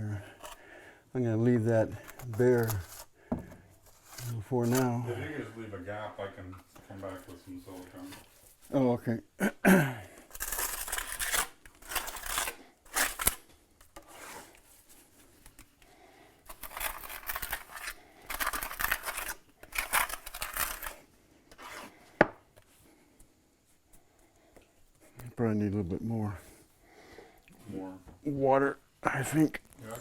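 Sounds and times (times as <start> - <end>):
trowel scraping wet mortar: 10.3 - 13.4, 14.0 - 14.6, 16.4 - 22.0.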